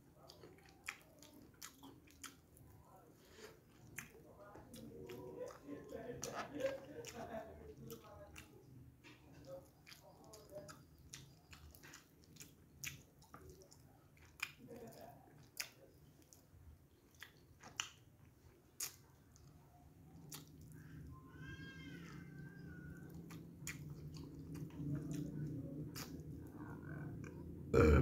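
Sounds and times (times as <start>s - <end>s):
person chewing rice: 0.1s - 21.1s, 22.5s - 27.4s.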